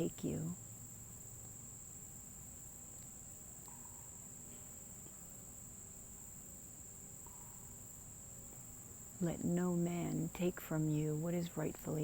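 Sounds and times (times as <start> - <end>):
faint low rumble: 0.0 - 0.7
crickets trilling: 0.0 - 12.0.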